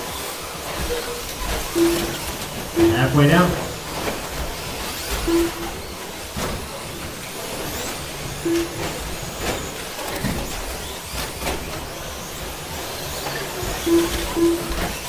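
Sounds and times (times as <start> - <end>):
trucks clacking on track: 0.0 - 15.0
rc truck motors whining: 3.8 - 15.0.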